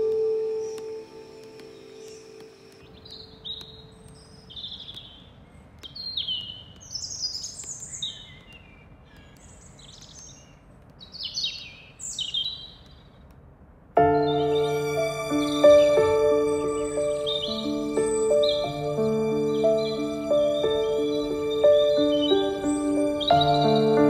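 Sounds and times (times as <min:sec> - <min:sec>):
background music: 0:00.0 - 0:04.3, 0:14.0 - 0:24.0
birds chirping: 0:00.0 - 0:13.2, 0:14.0 - 0:24.0
faint outdoor hiss: 0:00.0 - 0:24.0.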